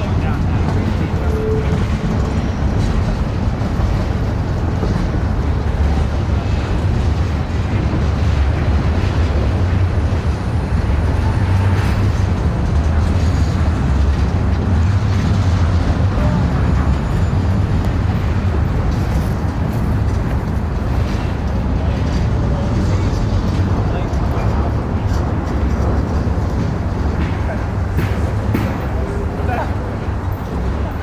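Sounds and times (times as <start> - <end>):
train rumbling by: 0.0 - 31.0.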